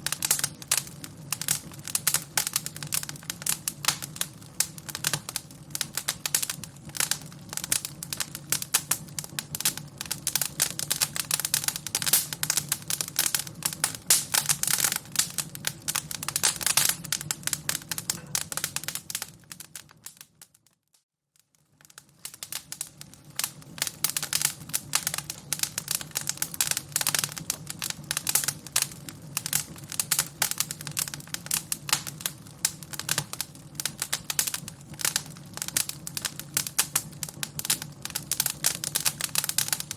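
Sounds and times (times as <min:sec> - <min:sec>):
fire crackling: 0:00.0 - 0:20.8, 0:21.4 - 0:39.9.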